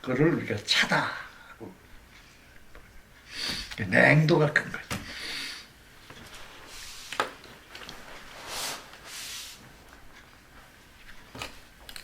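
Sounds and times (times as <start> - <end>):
soft hissy swells: 0.1 - 11.8.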